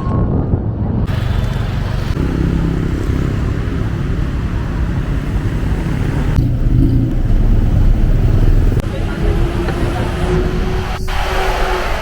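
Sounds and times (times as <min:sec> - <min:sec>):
road and traffic noise: 0:00.3 - 0:12.0
motorcycle engine running: 0:01.1 - 0:09.6.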